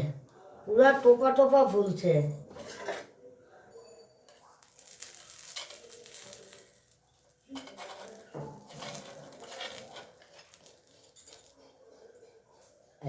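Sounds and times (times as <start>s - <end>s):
utensils clinking and scraping pan: 2.5s - 3.2s, 3.8s - 12.4s.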